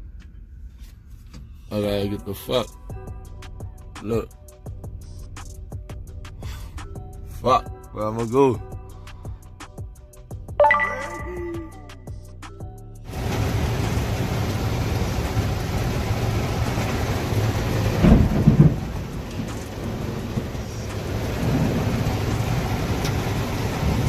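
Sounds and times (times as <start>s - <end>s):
heavy rain: 13.1s - 24.0s.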